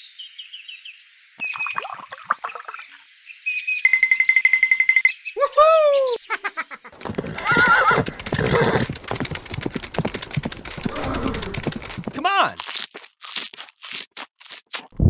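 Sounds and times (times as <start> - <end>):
fast hoofbeats: 6.9 - 12.6
horse whinny: 7.0 - 9.0, 10.8 - 11.8.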